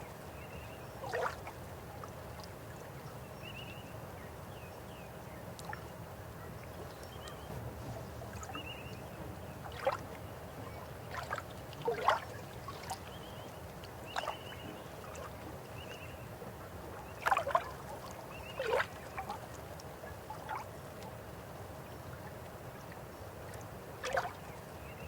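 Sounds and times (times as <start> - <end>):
water gurgles and splashes: 1.0 - 1.6, 9.4 - 15.8, 17.1 - 20.8, 24.0 - 24.4
river water flowing: 5.5 - 25.0.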